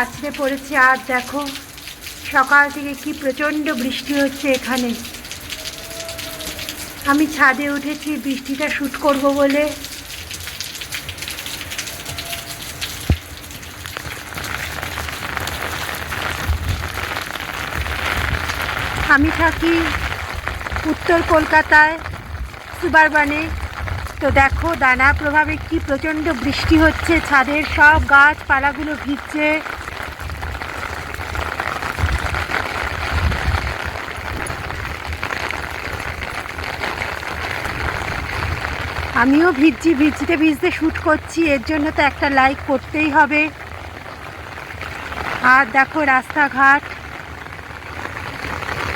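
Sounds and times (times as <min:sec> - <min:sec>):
heavy rain falling: 0:00.0 - 0:48.9
wind buffeting microphone: 0:16.3 - 0:17.1, 0:17.7 - 0:28.5, 0:29.8 - 0:36.4.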